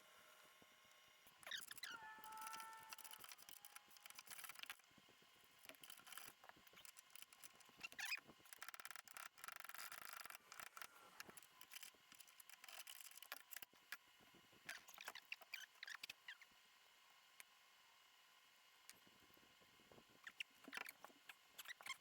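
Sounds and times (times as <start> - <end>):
short squeaks: 1.4 - 4.8, 5.7 - 11.9, 14.7 - 16.5, 20.2 - 22.0.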